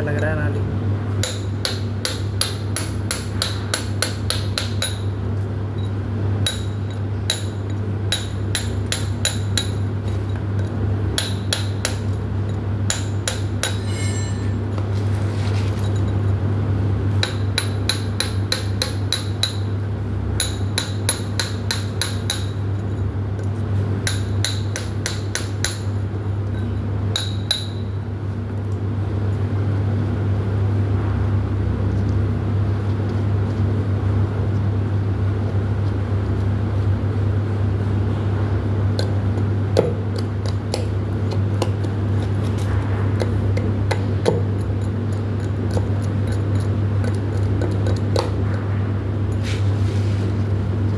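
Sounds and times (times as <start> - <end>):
metallic hammer strikes: 13.6 - 14.8
low hum: 13.7 - 14.9.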